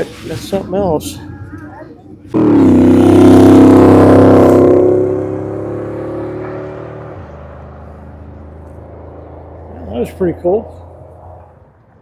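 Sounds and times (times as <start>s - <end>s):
car engine running: 2.3s - 11.6s.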